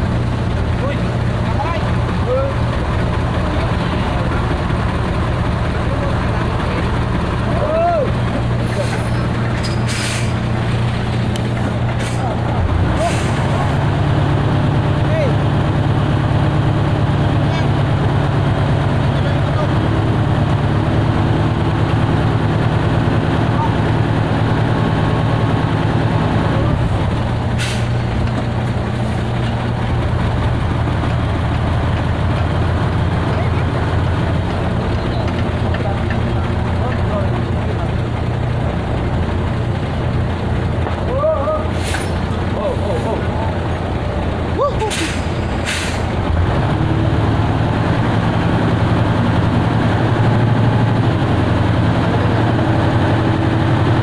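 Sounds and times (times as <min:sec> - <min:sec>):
heavy engine running: 0:00.0 - 0:54.0
short hiss: 0:09.6 - 0:10.4, 0:27.6 - 0:28.0, 0:44.9 - 0:46.1.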